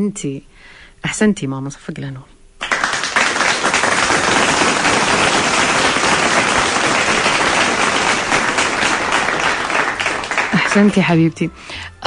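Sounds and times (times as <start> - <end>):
crowd applause: 2.6 - 11.2.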